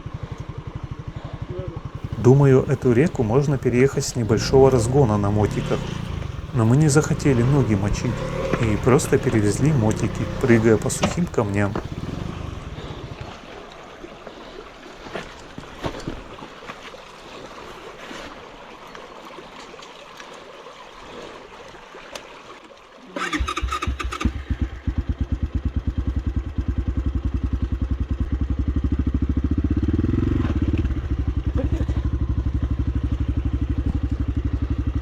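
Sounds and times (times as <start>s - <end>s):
motorcycle engine idling: 0.0s - 13.3s, 23.2s - 35.0s
water running over stones: 2.0s - 25.2s.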